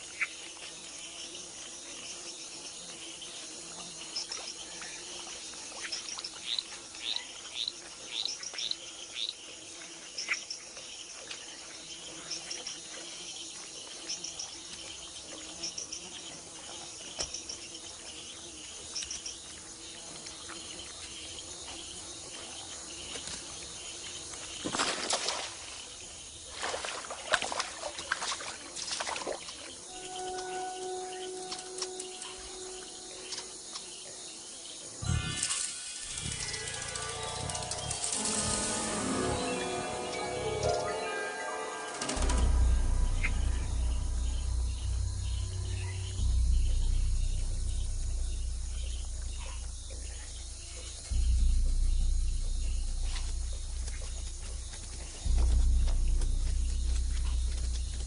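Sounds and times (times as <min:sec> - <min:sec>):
insect chorus hissing and chirping: 0:00.0 - 0:58.0
water splashing and sloshing: 0:24.4 - 0:29.8
quick rising chirps: 0:35.0 - 0:58.0.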